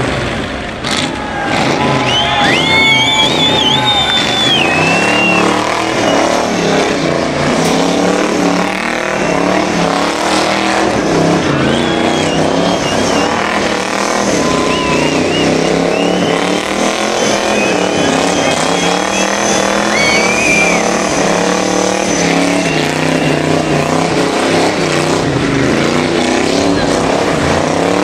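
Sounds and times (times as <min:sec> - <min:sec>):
engine revving hard: 0:00.0 - 0:28.0
tyre squeal: 0:01.5 - 0:06.5, 0:11.4 - 0:23.7.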